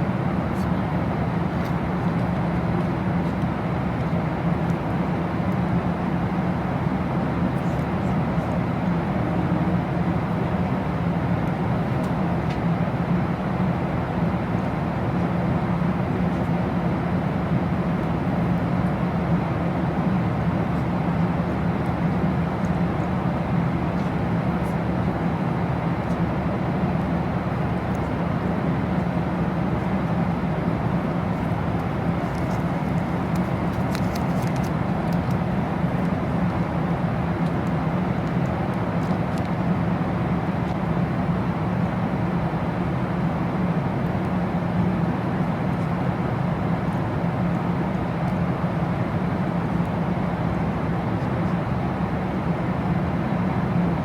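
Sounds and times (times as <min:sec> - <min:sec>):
vehicle interior drone: 0:11.2 - 0:54.0.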